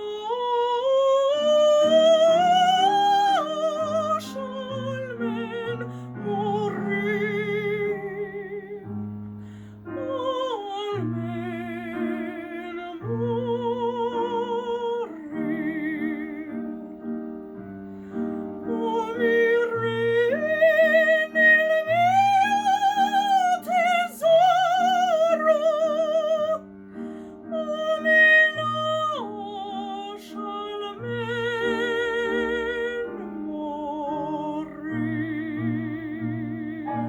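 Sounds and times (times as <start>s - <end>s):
operatic singing with vibrato: 0.0s - 8.8s, 18.6s - 26.6s
piano playing repeated chords: 0.0s - 37.0s.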